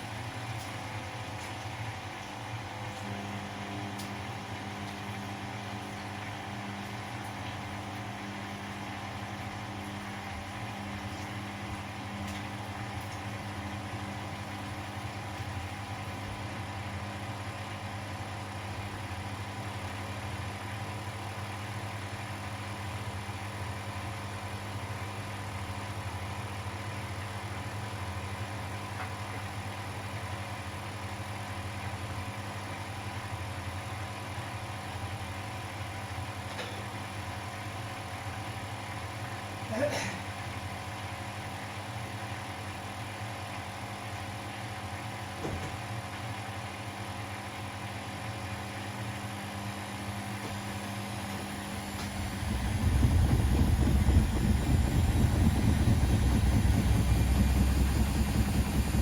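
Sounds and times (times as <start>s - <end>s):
laundry machine motor hum: 0.0s - 59.0s
steady tone: 51.8s - 59.0s.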